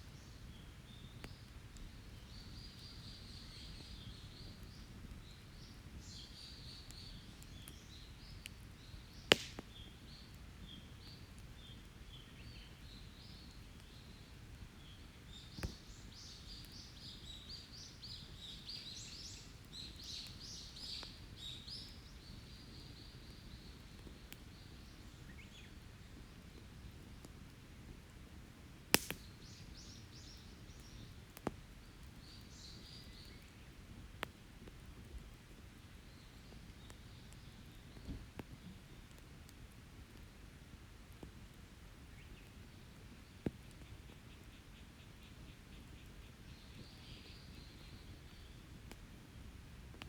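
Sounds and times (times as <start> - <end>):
forest birds chirping: 0.0 - 27.2, 29.0 - 33.8, 42.1 - 48.9
campfire popping: 0.1 - 50.0.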